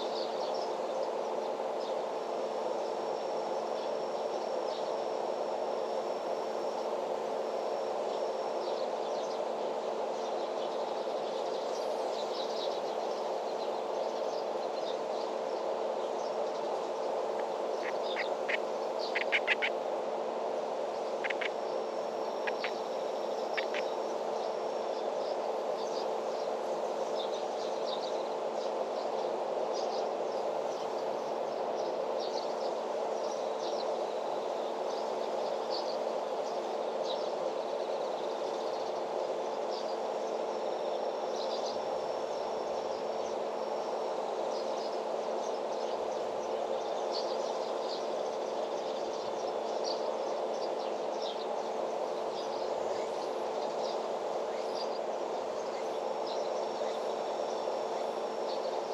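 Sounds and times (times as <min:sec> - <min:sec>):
high insect chirps: 0:00.0 - 0:58.9
steady low hum: 0:00.0 - 0:58.9.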